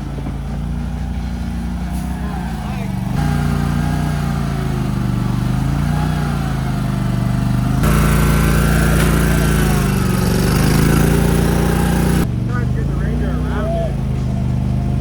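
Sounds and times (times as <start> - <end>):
vehicle engine under load: 0.0 - 15.0.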